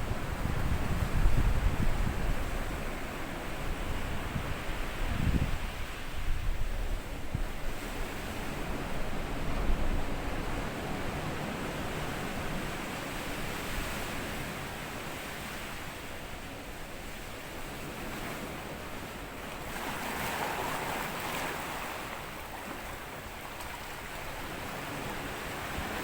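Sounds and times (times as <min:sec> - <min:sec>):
wind rumble on microphone: 0:00.0 - 0:26.0
sea waves on sandy beach: 0:07.6 - 0:26.0.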